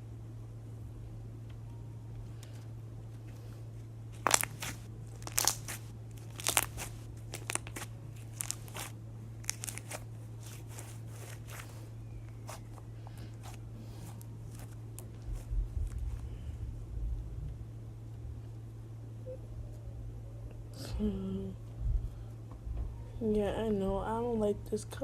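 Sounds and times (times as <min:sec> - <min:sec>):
steady low hum: 0:00.0 - 0:25.0
crunchy slime crackling: 0:04.1 - 0:16.4.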